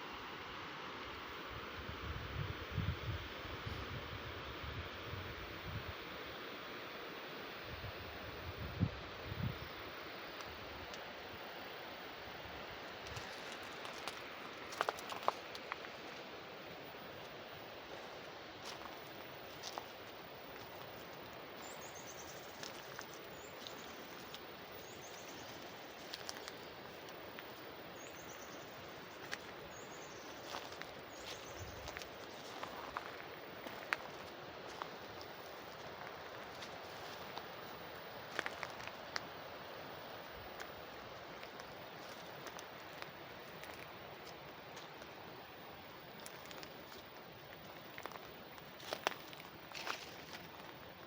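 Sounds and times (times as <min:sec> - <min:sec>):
water flowing in channel: 0:09.9 - 0:51.0
footsteps on dry leaves: 0:13.0 - 0:16.2, 0:17.8 - 0:37.6, 0:47.8 - 0:50.9.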